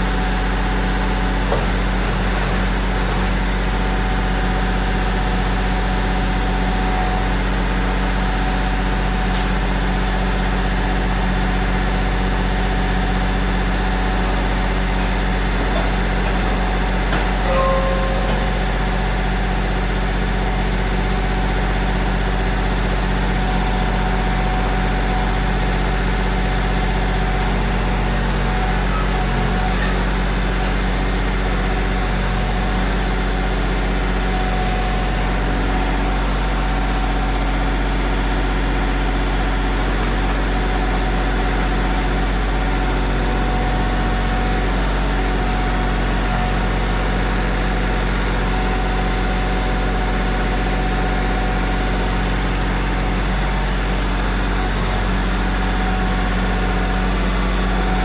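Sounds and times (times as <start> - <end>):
steady machine hum: 0.0 - 29.2.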